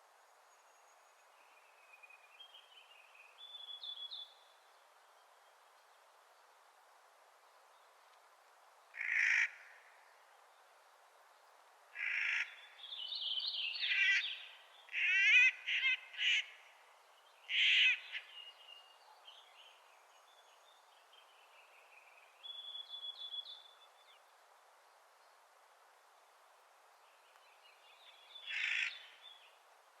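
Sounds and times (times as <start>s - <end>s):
harsh grating bird calls: 28.4s - 29.2s.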